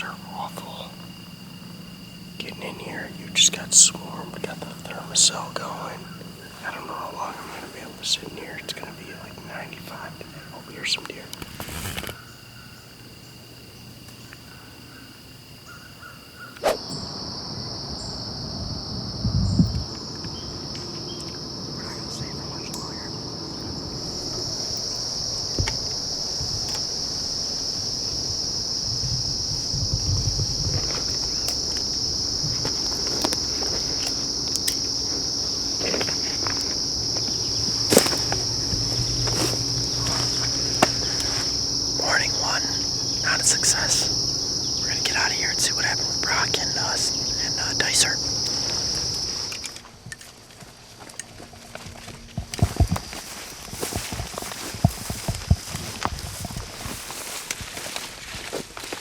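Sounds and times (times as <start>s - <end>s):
high-pitched insect chorus: 0.0s - 59.0s
low handling thumps: 29.0s - 49.6s.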